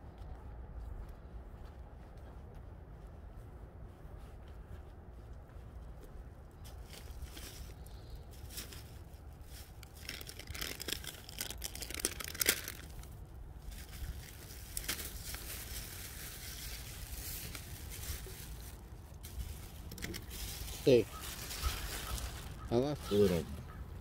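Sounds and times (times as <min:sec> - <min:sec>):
plastic packaging crinkling: 0:08.4 - 0:23.7.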